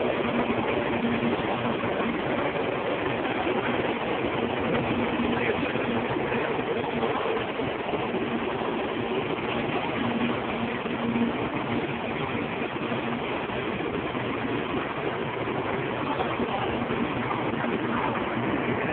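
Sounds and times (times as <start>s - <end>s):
faint steady hum: 0.0s - 18.9s.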